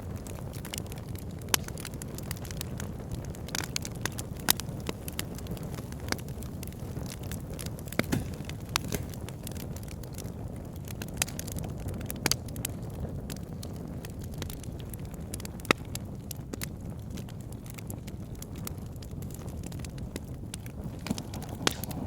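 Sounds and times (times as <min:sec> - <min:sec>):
fire crackling and popping: 0:00.0 - 0:22.0
low rumble of burning logs: 0:00.0 - 0:22.0.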